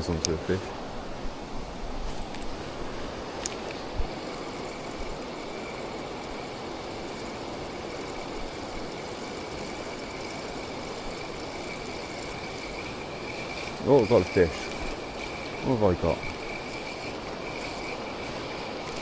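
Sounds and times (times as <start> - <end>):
thin high whine: 0.0 - 19.0
water pouring over a weir: 4.4 - 19.0.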